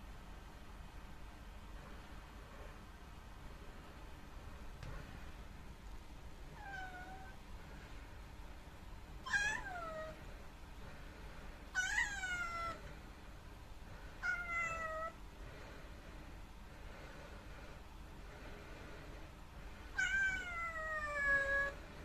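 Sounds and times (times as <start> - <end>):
kitten meowing: 9.2 - 10.2, 11.8 - 12.8, 14.2 - 15.2, 20.0 - 21.8.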